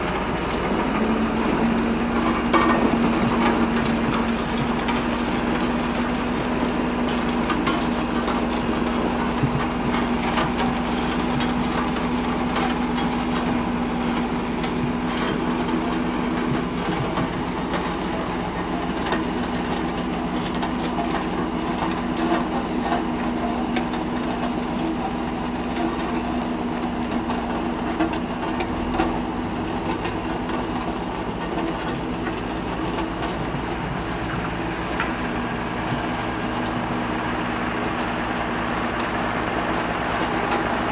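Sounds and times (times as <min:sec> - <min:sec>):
heavy machinery humming: 0:00.0 - 0:40.9
clanks and knocks: 0:00.8 - 0:24.6.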